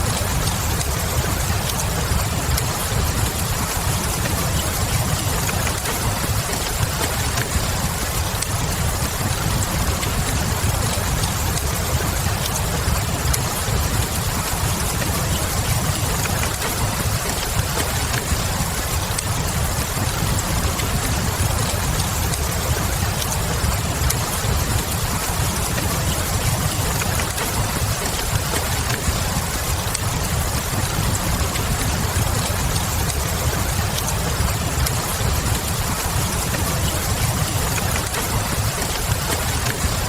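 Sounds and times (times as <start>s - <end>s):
rain: 0.0s - 40.0s
wood fire crackling: 0.0s - 40.0s.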